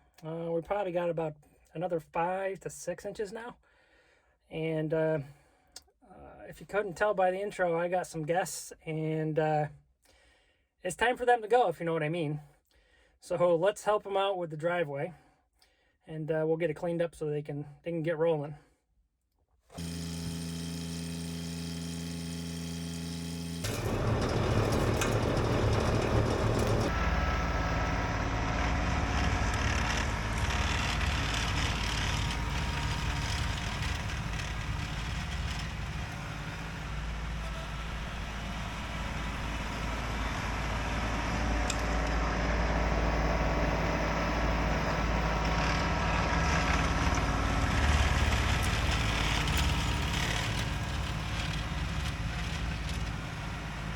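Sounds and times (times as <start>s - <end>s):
snowblower rushing: 19.8s - 53.9s
tractor diesel engine: 23.6s - 53.9s.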